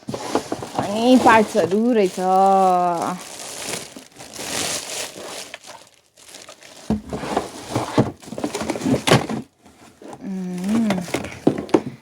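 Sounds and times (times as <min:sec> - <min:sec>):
plastic packaging crinkling: 0:00.0 - 0:09.6
plastic parts knocking: 0:00.0 - 0:12.0.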